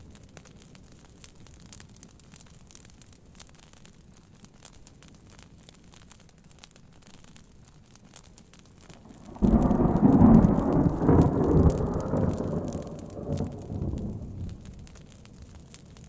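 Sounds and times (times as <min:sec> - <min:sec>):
faint fire crackling: 0:00.0 - 0:16.0
rain: 0:00.0 - 0:16.0
thunder rumbling: 0:09.0 - 0:16.0.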